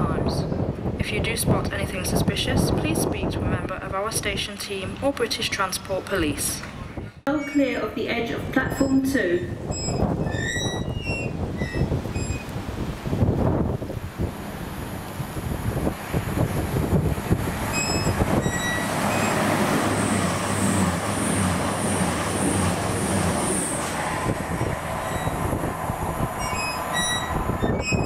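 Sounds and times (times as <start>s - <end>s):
train wheels rushing on rail: 9.6s - 28.0s
low engine hum: 13.4s - 28.0s.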